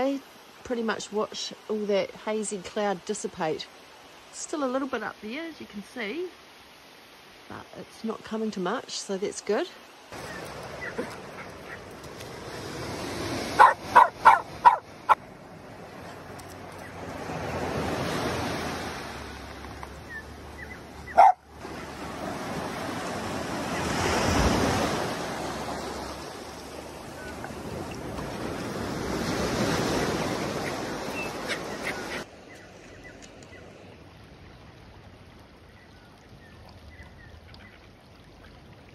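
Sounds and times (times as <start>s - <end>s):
waves breaking on a beach: 7.2s - 35.6s
dog barking: 13.6s - 15.2s, 21.1s - 21.5s.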